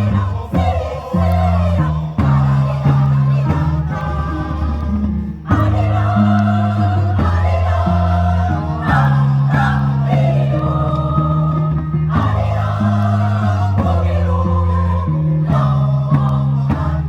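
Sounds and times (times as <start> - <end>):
choir singing with instruments: 0.0 - 17.0
held bass notes: 0.0 - 17.0.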